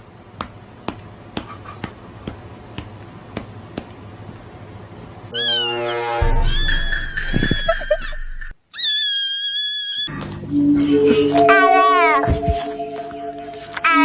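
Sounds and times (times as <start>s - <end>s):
low hum: 5.5s - 8.6s, 10.2s - 14.0s
cat meowing: 8.7s - 10.1s.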